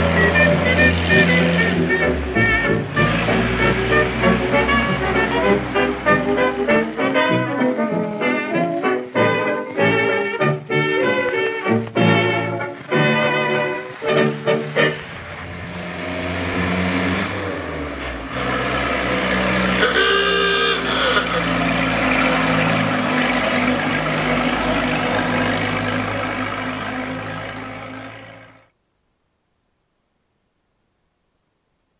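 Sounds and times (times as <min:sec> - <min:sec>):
car engine running: 0:00.0 - 0:06.9, 0:12.8 - 0:28.7
road noise: 0:00.0 - 0:28.7.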